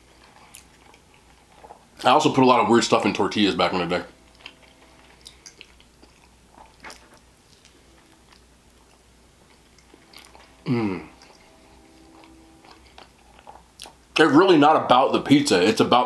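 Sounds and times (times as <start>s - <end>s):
person chewing: 0.0s - 2.1s, 4.2s - 14.1s
soft crunches and clicks: 4.3s - 10.6s.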